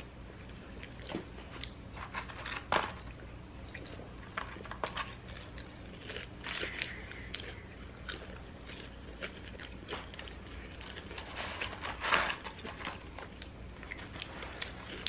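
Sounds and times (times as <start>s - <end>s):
fries being bitten and chewed: 0.0s - 15.0s
paper containers rustling: 2.0s - 3.0s, 11.2s - 13.4s.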